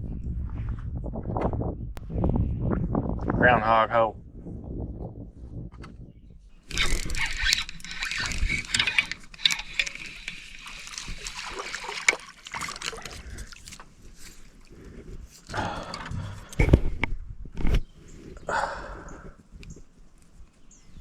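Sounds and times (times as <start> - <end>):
water splashing against a boat: 6.6 - 16.9.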